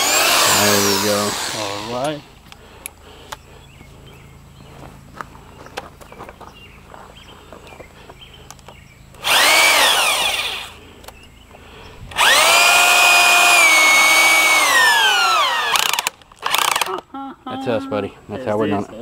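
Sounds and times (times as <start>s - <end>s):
power drill motor whine: 0.0s - 2.2s, 9.2s - 10.8s, 12.1s - 16.9s.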